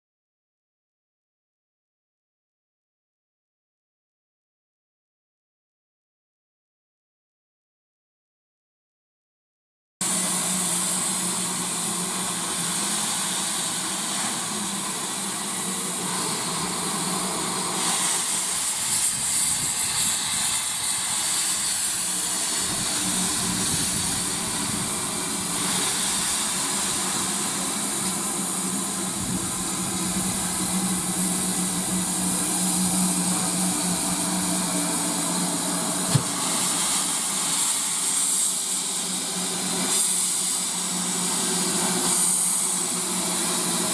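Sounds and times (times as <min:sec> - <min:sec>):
steam hissing: 0:10.0 - 0:43.9.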